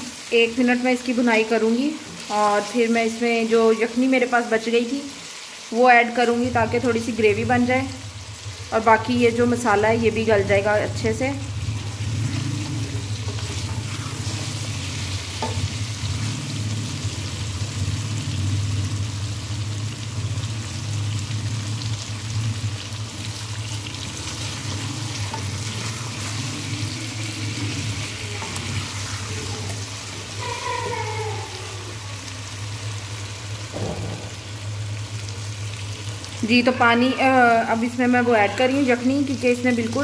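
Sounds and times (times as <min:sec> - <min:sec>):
chicken sizzling in hot oil: 0:00.0 - 0:40.0
spatula stirring and scraping: 0:11.5 - 0:17.4, 0:23.1 - 0:31.5.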